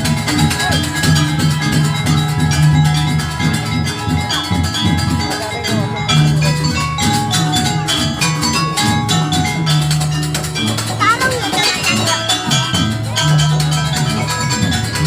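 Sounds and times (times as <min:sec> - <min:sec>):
gamelan drums and metal percussion: 0:00.0 - 0:15.0.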